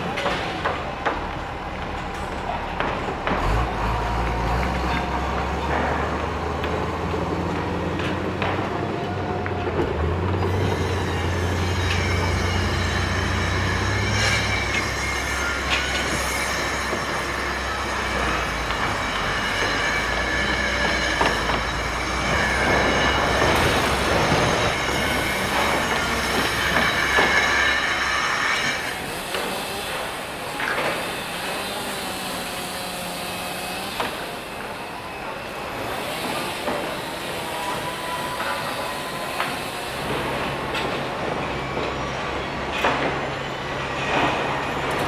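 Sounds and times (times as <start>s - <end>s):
continuous clatter: 0.0s - 45.0s
high metallic squeal: 10.4s - 45.0s.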